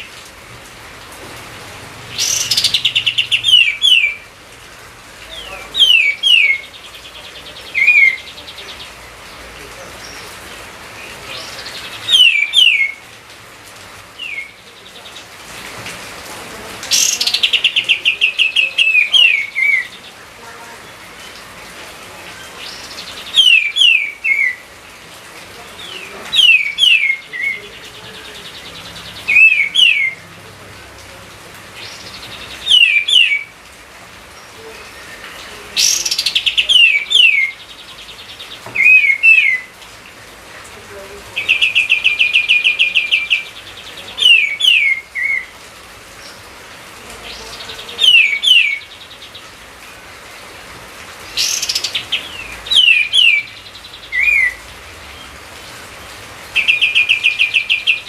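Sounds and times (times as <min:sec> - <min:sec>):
songbird whistling phrases: 0:02.2 - 0:04.2, 0:05.4 - 0:06.8, 0:07.6 - 0:08.8, 0:11.4 - 0:13.0, 0:14.2 - 0:14.6, 0:16.9 - 0:20.0, 0:22.7 - 0:24.6, 0:25.9 - 0:27.6, 0:29.3 - 0:30.2, 0:31.9 - 0:33.5, 0:38.8 - 0:39.7, 0:41.4 - 0:45.5, 0:47.3 - 0:48.9, 0:51.4 - 0:54.6.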